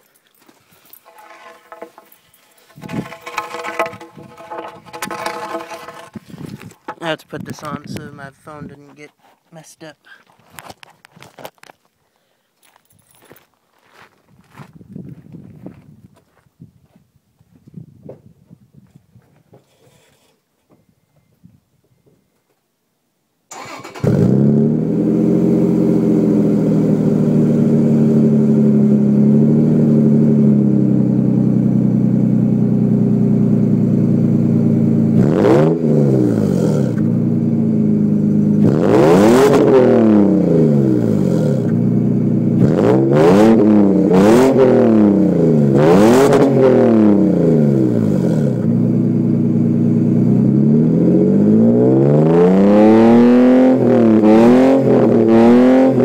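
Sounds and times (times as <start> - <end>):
engine revving in quick blips: 23.5 - 26.2, 38.6 - 41.8, 42.6 - 48.7
truck engine starting: 23.5 - 27.2.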